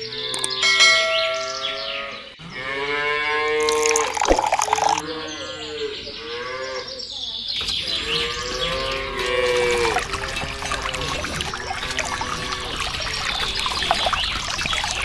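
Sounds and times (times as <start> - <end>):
cows mooing: 1.4 - 4.2, 7.8 - 15.0.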